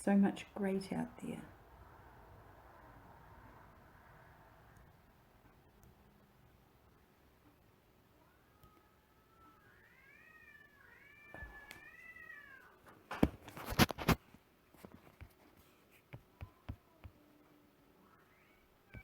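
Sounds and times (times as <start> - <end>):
cat meowing: 8.2 - 12.8.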